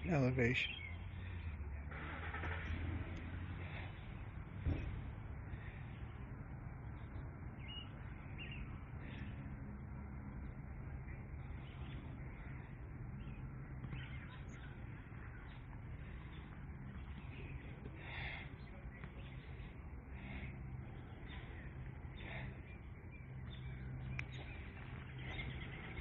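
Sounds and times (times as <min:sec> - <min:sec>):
low background rumble: 0:00.0 - 0:26.0
faint bird chirps: 0:00.5 - 0:01.6, 0:10.4 - 0:26.0.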